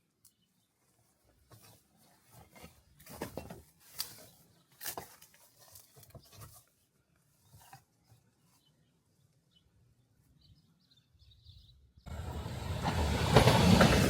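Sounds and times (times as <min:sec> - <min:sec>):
faint footsteps on dirt: 0:00.3 - 0:09.4.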